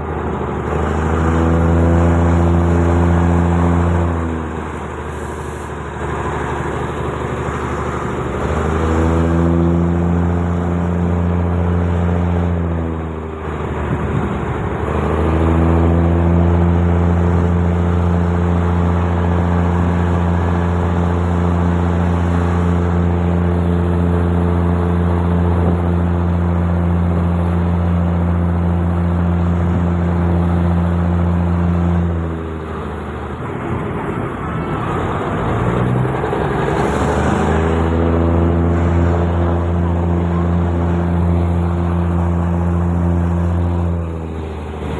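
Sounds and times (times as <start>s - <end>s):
diesel train engine drone: 0.0s - 44.9s.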